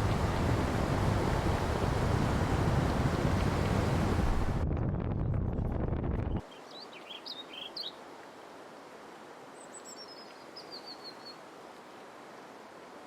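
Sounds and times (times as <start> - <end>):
steady outdoor hiss: 0.0 - 4.6, 6.4 - 13.0
small birds chirping: 6.4 - 8.0, 9.6 - 11.4.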